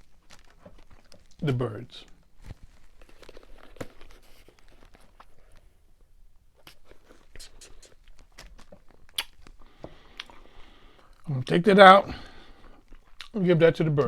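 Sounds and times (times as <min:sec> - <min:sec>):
paper packaging rustling: 0:00.0 - 0:05.7, 0:07.9 - 0:09.6.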